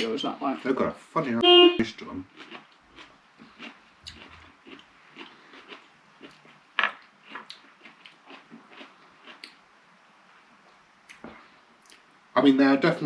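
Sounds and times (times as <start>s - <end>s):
crunchy chewing: 2.3s - 9.6s.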